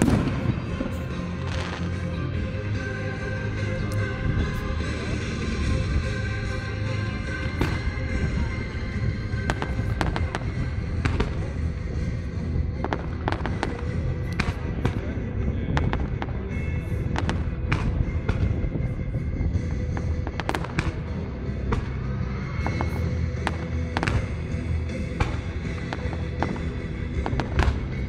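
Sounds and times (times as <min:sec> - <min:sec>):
fireworks bangs: 0:00.0 - 0:02.2, 0:09.1 - 0:28.0
music over sound system: 0:00.0 - 0:28.0.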